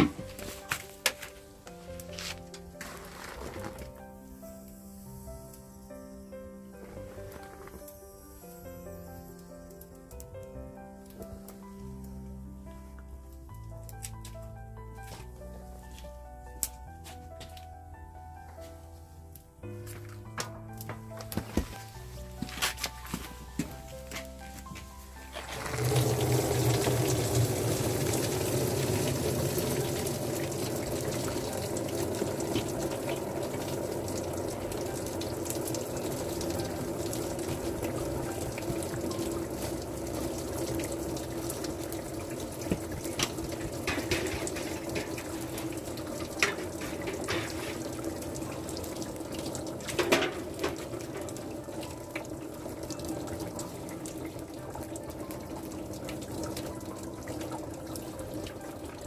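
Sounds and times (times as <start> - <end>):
liquid rushing: 25.4 - 54.4.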